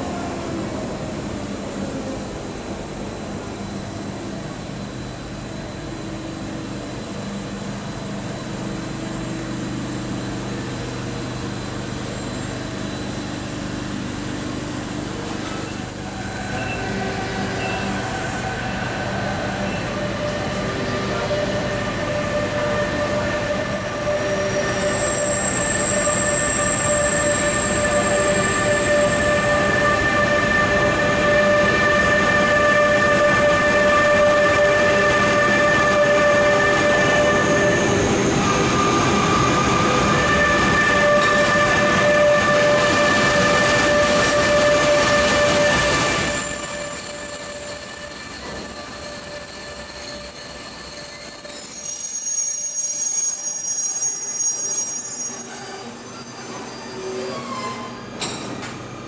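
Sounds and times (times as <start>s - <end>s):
high squealing tones: 24.0s - 29.6s.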